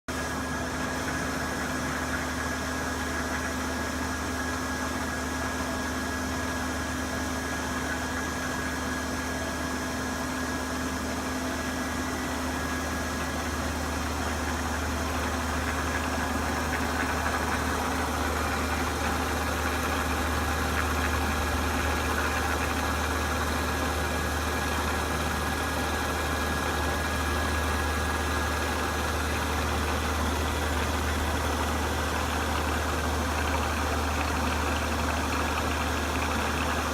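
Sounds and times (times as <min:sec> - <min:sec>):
machine tool running: 0:11.6 - 0:36.9.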